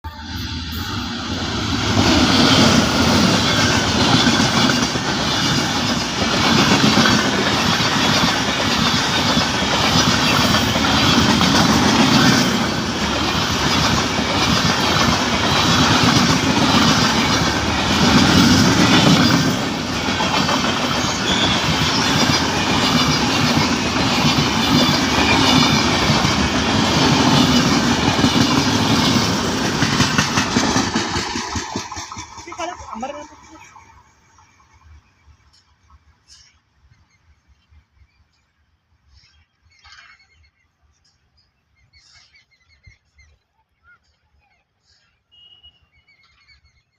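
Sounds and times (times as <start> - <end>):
train wheels clattering on rails: 1.2 - 36.6.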